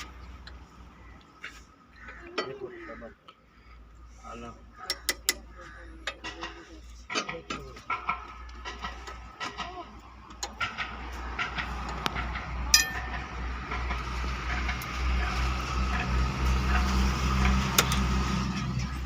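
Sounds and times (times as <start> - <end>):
diesel engine low rumble: 0.0 - 19.0
sharp metallic clinks: 12.2 - 13.4.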